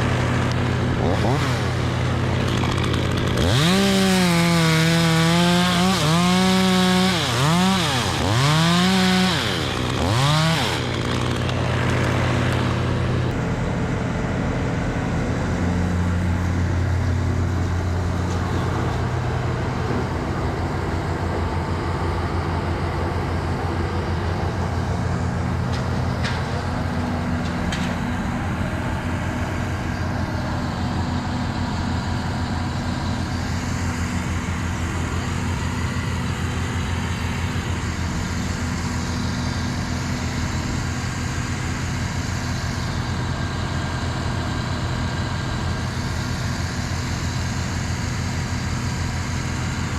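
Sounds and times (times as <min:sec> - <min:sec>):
chainsaw revving: 0:00.0 - 0:13.4
low engine hum: 0:00.0 - 0:49.9.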